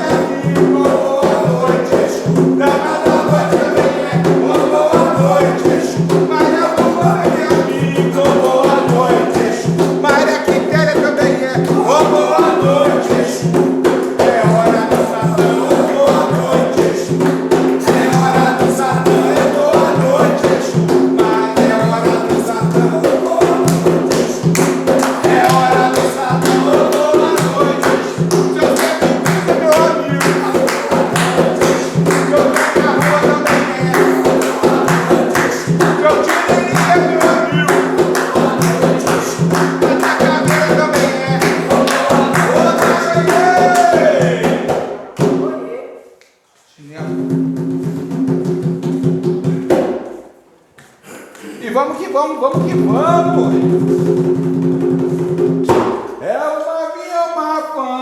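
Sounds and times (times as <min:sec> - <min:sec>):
voices singing a chant: 0:00.0 - 0:45.5
fast hand percussion: 0:00.0 - 0:45.7, 0:47.0 - 0:50.3, 0:52.5 - 0:56.2.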